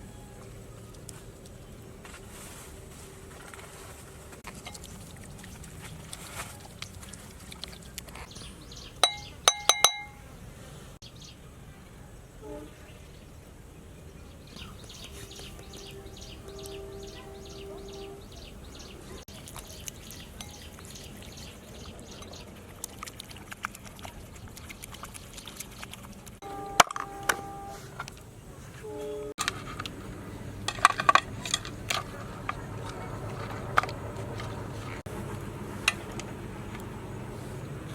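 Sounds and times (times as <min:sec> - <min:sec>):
utensil clinking against vessel: 0:04.5 - 0:05.1, 0:09.0 - 0:10.2.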